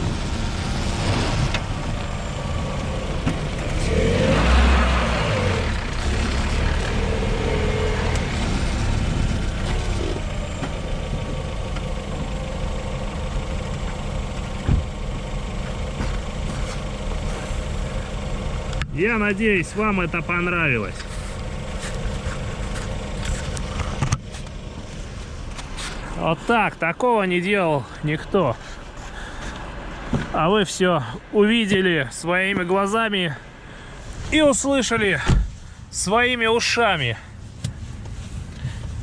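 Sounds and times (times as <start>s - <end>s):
car engine revving: 0.0s - 26.8s
tyres rumbling over ruts: 0.0s - 39.0s.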